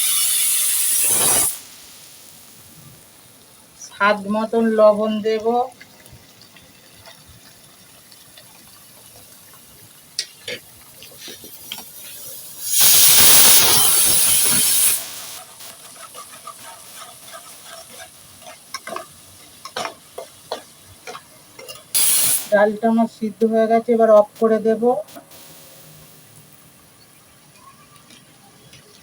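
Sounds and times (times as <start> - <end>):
loud hiss: 0.0 - 3.2, 11.2 - 18.3, 21.9 - 23.0, 24.4 - 26.7
spices frying in a pan: 0.0 - 29.0
spatula scraping a pan: 10.4 - 22.2.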